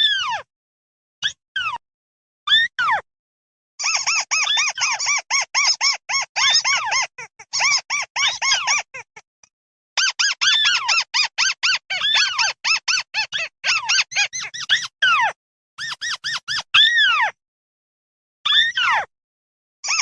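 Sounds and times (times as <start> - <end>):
flock of birds squeaky calls: 3.8 - 9.2, 10.0 - 17.0.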